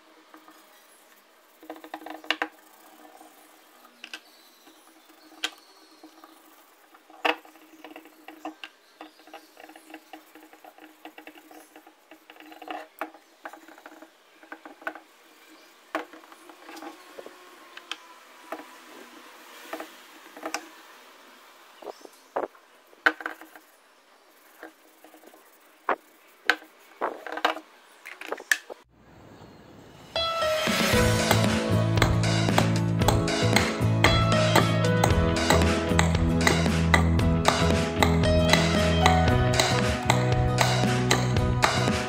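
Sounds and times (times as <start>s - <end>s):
sharp taps and clicks: 31.3s - 42.0s.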